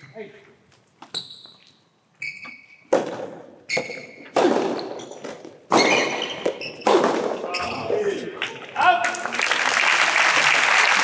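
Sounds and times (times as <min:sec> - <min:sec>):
shoe squeaks: 0:00.0 - 0:00.2, 0:01.0 - 0:02.9, 0:03.6 - 0:07.9.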